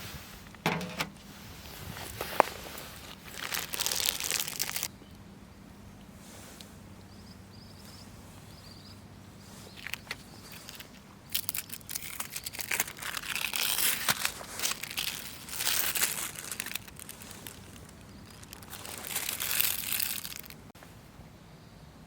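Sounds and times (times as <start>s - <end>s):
crinkling and crumpling handling: 0.0s - 4.9s, 9.4s - 20.7s.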